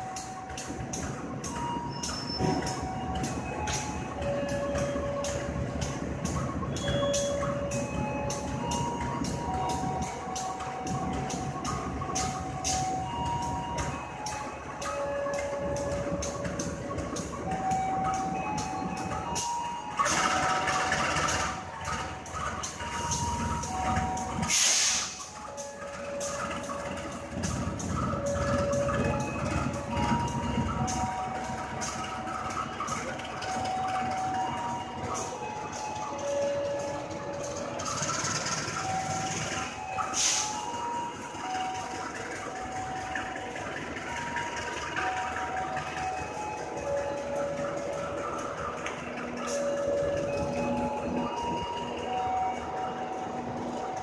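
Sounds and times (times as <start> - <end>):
train rumbling past: 0.0 - 54.0
wheels squealing: 0.0 - 54.0
short burst of hiss: 24.5 - 25.2.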